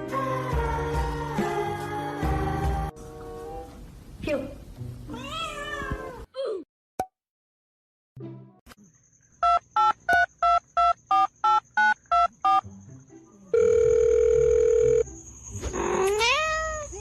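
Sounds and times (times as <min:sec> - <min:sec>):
keypad touch-tone beeps: 0:09.4 - 0:12.6
steady telephone tone: 0:13.5 - 0:15.0.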